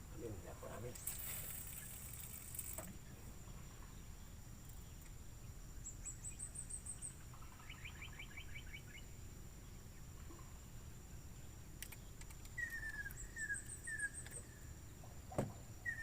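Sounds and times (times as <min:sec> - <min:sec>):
high insect drone: 0:00.0 - 0:16.0
birds calling: 0:00.2 - 0:16.0.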